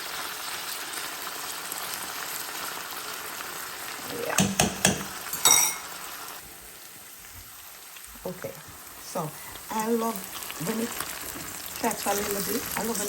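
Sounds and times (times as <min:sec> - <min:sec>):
food sizzling in hot oil: 0:00.0 - 0:13.0
metal utensil clinking on pot: 0:04.4 - 0:05.9.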